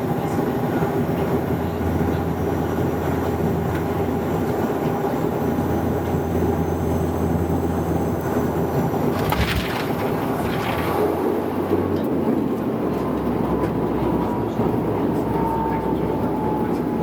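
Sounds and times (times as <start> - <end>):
airliner engine drone: 0.0 - 9.2, 11.0 - 17.0
cabin airflow: 9.1 - 11.4.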